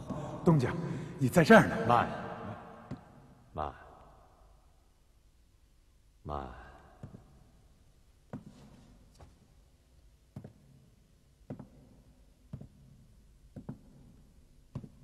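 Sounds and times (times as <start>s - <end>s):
slow footsteps tapping: 6.8s - 15.0s.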